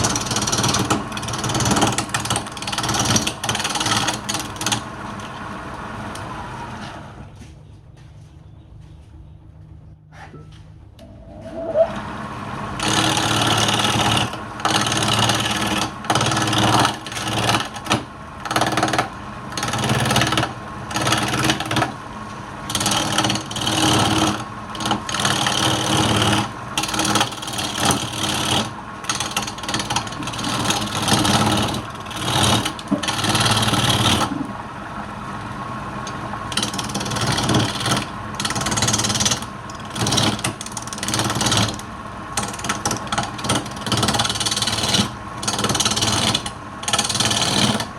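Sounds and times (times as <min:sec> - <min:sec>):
wood lathe hum: 0:11.0 - 0:22.0, 0:22.6 - 0:47.9
turning tool scraping wood: 0:11.2 - 0:12.0, 0:12.8 - 0:18.9, 0:22.7 - 0:34.5, 0:36.5 - 0:47.9.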